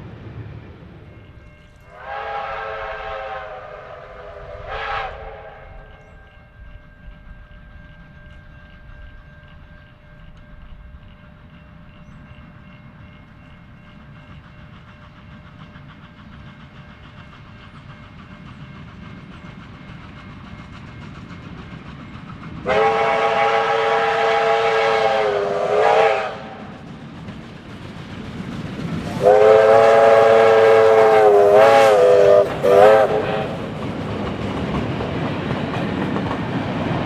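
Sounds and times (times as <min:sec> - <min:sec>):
steam locomotive rumble: 0:00.0 - 0:37.0
steam whistle: 0:01.9 - 0:06.0, 0:22.6 - 0:26.7, 0:29.1 - 0:33.6.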